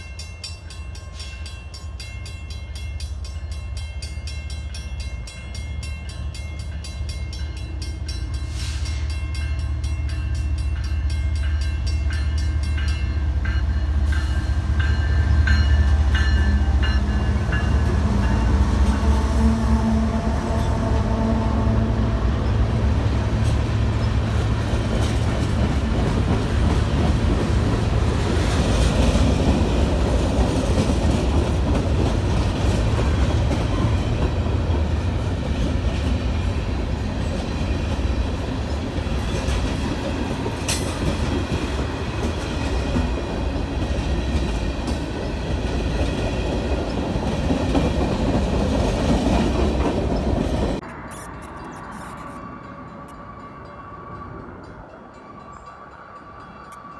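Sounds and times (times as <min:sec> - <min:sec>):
train wheels rumbling on rails: 0:00.0 - 0:53.7
clickety-clack over rail joints: 0:10.7 - 0:50.8.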